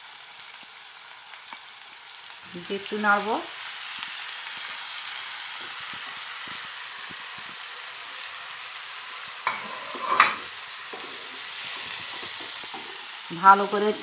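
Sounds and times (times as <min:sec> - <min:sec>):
food sizzling in oil: 0:00.0 - 0:14.0
spatula scraping a pan: 0:09.4 - 0:13.1.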